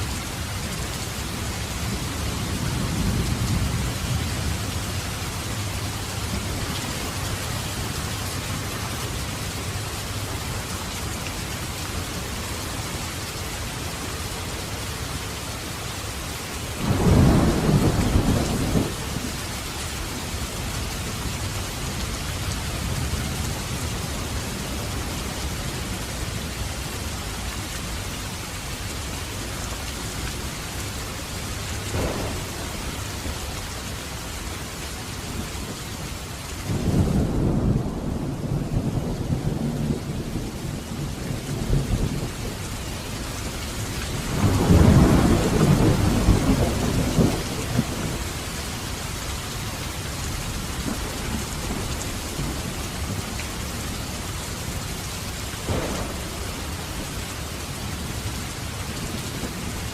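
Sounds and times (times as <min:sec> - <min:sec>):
heavy rain falling: 0:00.0 - 0:59.9
thunder crack rumbling: 0:16.8 - 0:19.3, 0:31.8 - 0:33.3, 0:44.1 - 0:48.3, 0:55.6 - 0:58.2.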